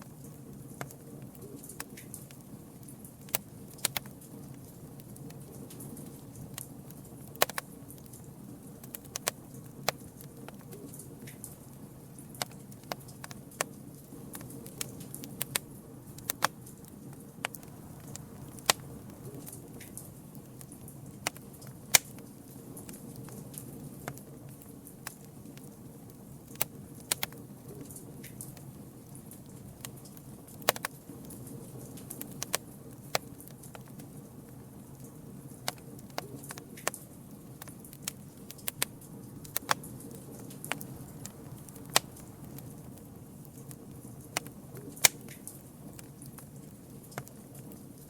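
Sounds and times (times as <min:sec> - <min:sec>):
burning wood crackling: 0:00.0 - 0:48.0
flame rushing: 0:17.4 - 0:23.8, 0:40.5 - 0:44.4.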